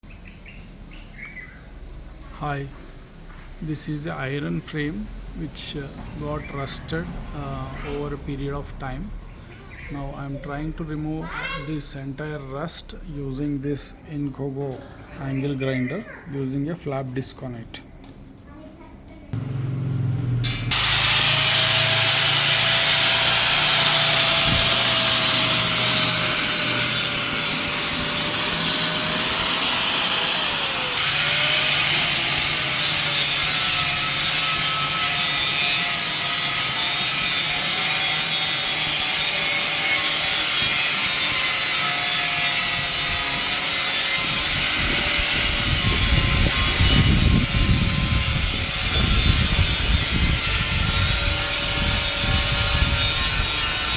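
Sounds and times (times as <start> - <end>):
angle grinder grinding metal: 19.4 - 53.9.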